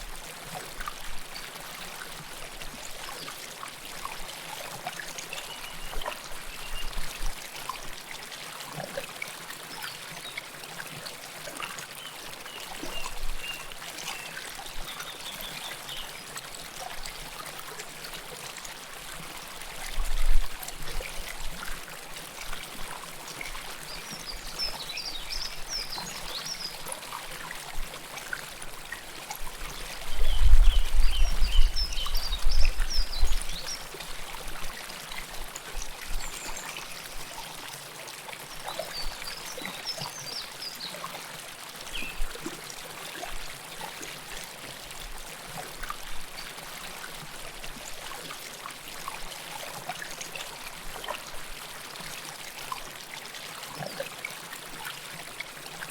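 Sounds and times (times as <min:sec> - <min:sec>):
river water babbling: 0:20.6 - 0:30.4, 0:31.1 - 0:55.9.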